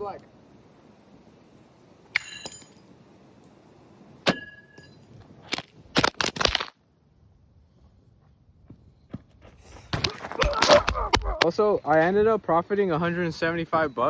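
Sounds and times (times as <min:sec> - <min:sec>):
metallic clinks with ringing tone: 0:02.2 - 0:02.9
sharp cracks: 0:05.4 - 0:06.8.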